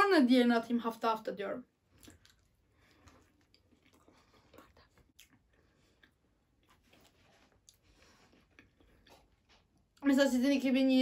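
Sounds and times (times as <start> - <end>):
person chewing: 1.9 - 10.0.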